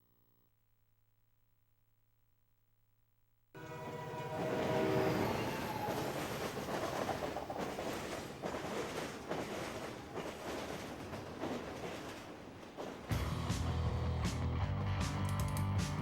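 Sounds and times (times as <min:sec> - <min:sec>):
train horn chord: 0:03.6 - 0:05.7
train passing: 0:03.6 - 0:15.0.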